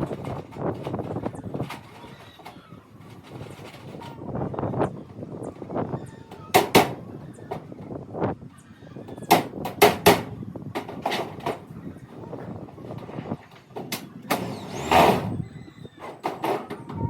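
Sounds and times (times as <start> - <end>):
sharp knocks on metal: 9.3 - 11.6.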